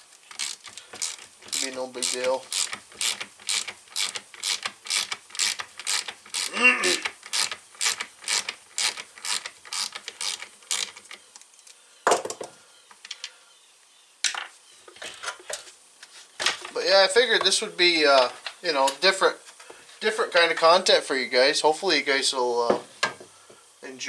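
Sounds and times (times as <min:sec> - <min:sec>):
ratchet tool clicking: 0:00.3 - 0:11.2.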